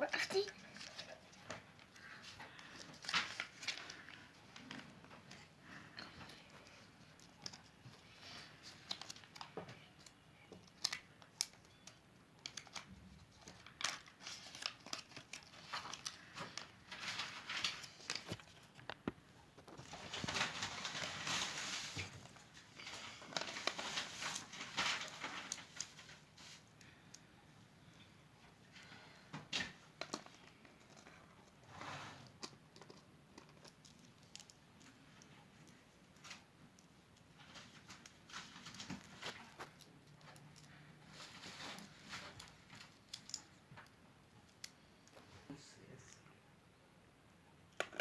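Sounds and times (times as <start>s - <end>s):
foil wrapper crinkling and tearing: 13.4s - 18.8s, 22.8s - 26.2s.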